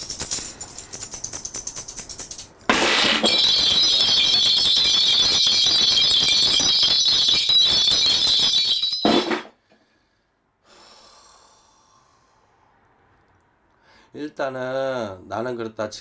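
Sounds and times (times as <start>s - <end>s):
small metal bells jingling: 0.0s - 9.5s.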